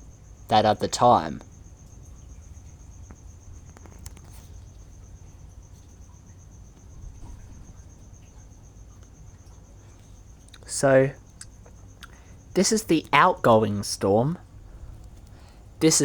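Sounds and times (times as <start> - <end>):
crickets chirping: 0.0 - 16.0
low background rumble: 0.0 - 16.0
faint clicks: 3.1 - 4.6.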